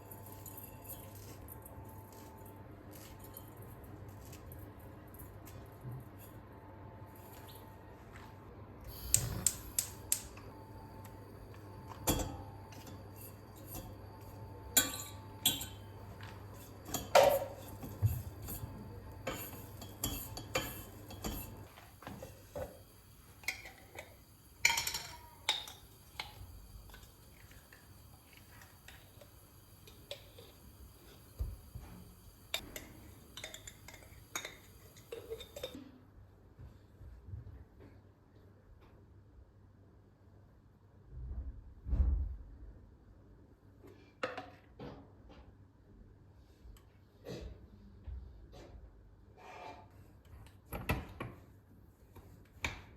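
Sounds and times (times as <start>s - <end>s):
crockery and utensils clinking: 11.8s - 22.6s, 23.4s - 27.5s, 32.5s - 35.8s.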